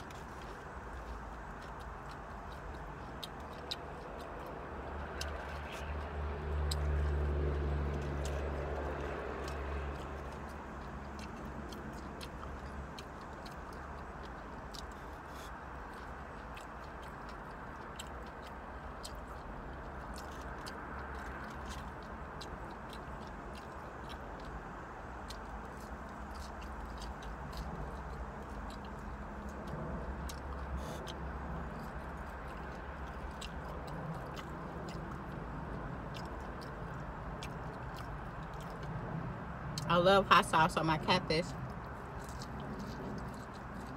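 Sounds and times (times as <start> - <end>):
chewing and wet mouth clicks: 0.0 - 43.9
low hum in car cabin: 21.7 - 43.9.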